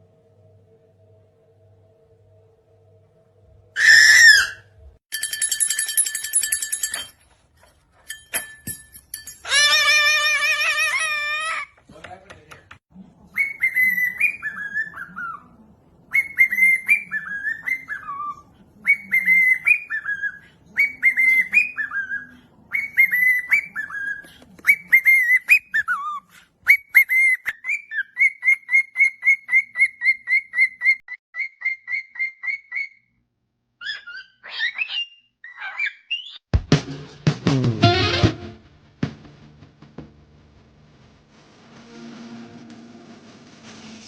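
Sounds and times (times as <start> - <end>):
bird singing whistled phrases: 13.4 - 15.4, 16.1 - 33.0.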